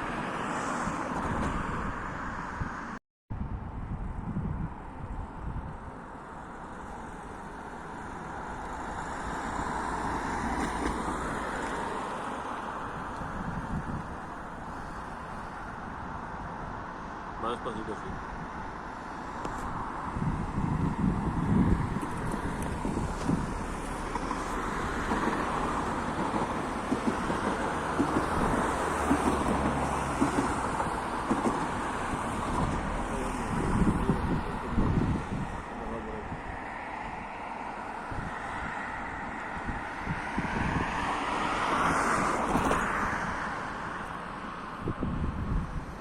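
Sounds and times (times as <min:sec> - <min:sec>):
wind on microphone: 0:00.0 - 0:06.2, 0:08.2 - 0:16.8, 0:18.0 - 0:46.0
train rumbling past: 0:21.3 - 0:35.7.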